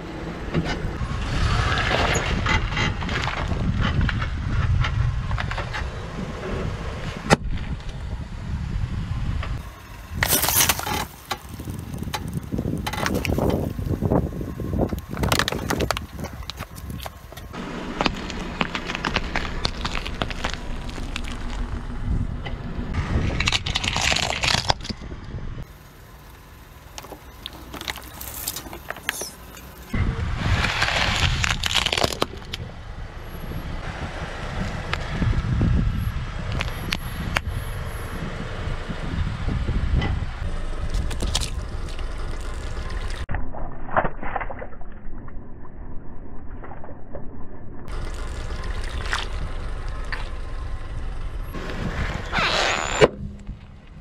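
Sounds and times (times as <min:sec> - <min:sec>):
low vehicle rumble: 0:00.0 - 0:54.0
tyre crushing objects: 0:09.6 - 0:21.8, 0:25.6 - 0:30.0
cracking and crunching: 0:09.6 - 0:22.0, 0:23.2 - 0:25.0, 0:25.6 - 0:32.6, 0:40.9 - 0:44.9, 0:47.9 - 0:54.0
squelching and splashing: 0:25.7 - 0:30.0, 0:47.9 - 0:50.4.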